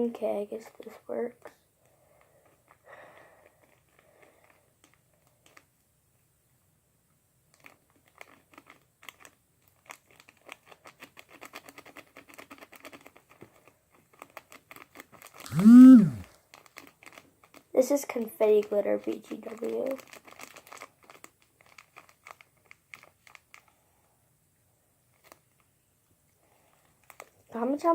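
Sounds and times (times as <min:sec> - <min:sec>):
plastic packet crinkling: 0:07.5 - 0:15.4, 0:16.5 - 0:23.7, 0:26.8 - 0:27.5.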